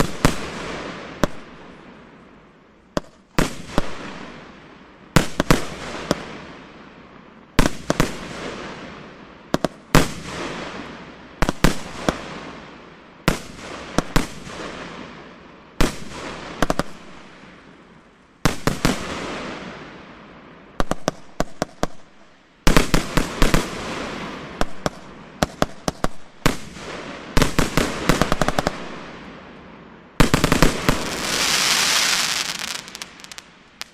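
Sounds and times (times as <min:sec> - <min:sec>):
firework bangs: 0:30.2 - 0:33.9
firework hissing: 0:30.3 - 0:33.9.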